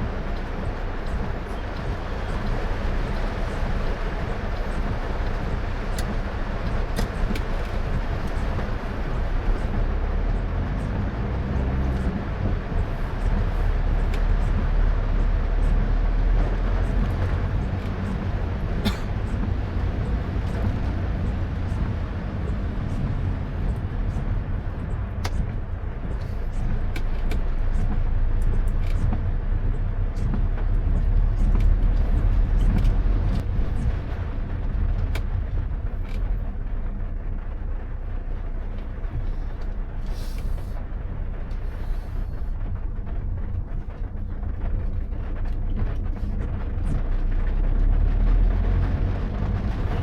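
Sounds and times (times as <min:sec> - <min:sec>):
car engine and tyres rumbling: 0:00.0 - 0:50.0
road spray hiss: 0:39.3 - 0:40.9.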